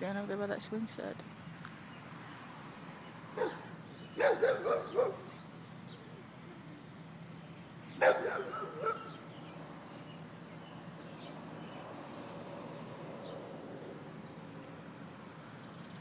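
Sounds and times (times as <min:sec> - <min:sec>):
dog barking: 0:03.4 - 0:05.3, 0:08.0 - 0:09.2.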